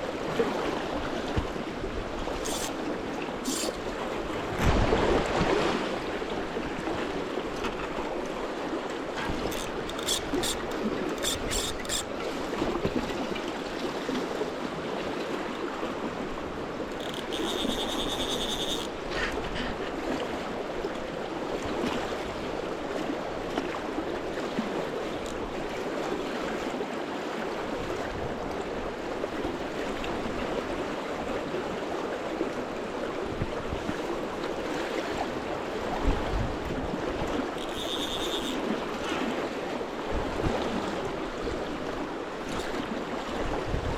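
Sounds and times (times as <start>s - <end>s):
fast river water rushing: 0.0s - 43.9s.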